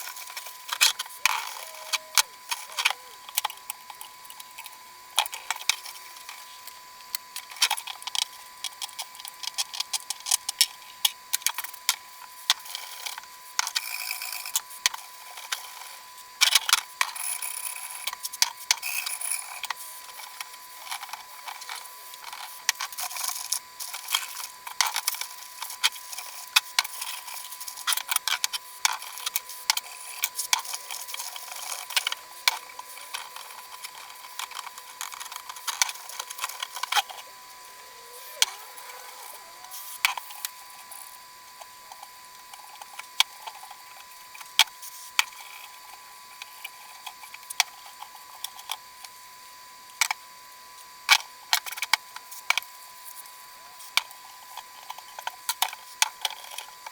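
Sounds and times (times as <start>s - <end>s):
faint steady high tone: 0.6s - 4.0s, 30.1s - 42.0s.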